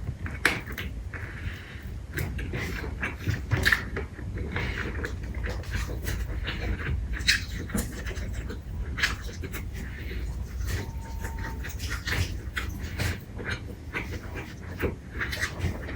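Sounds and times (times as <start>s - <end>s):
steady low hum: 0.0s - 15.9s
person chewing and smacking: 0.1s - 15.9s.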